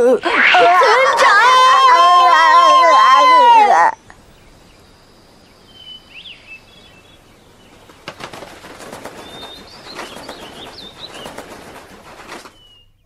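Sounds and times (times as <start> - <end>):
high warbling chirps: 0.0 - 6.5
wings fluttering: 7.1 - 13.0.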